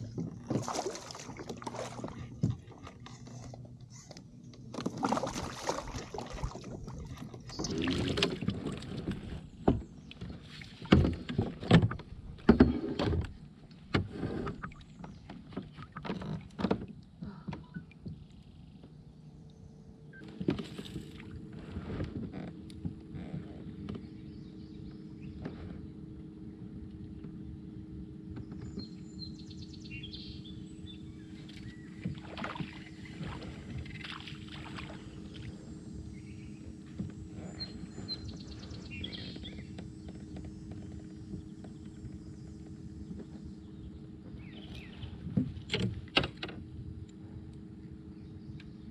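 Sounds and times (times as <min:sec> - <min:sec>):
gear knocking in a boat: 0:00.0 - 0:19.0, 0:26.6 - 0:35.4, 0:36.1 - 0:47.3
birds chirping and trilling: 0:28.4 - 0:33.2, 0:37.4 - 0:45.2.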